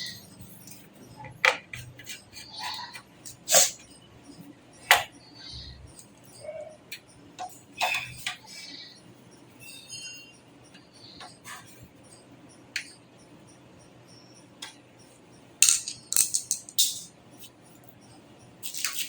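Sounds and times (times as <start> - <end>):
computer parts and screws clinking: 15.6 - 17.5, 18.6 - 19.0.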